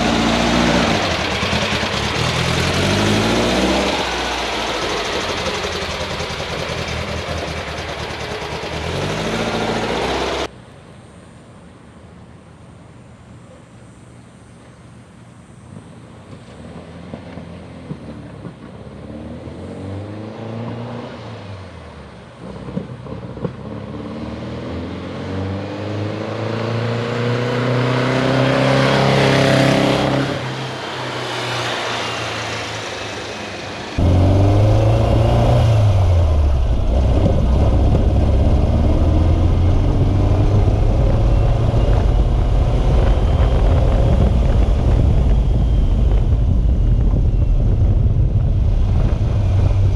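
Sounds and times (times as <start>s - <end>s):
car engine revving: 0.0s - 10.5s, 22.4s - 46.8s.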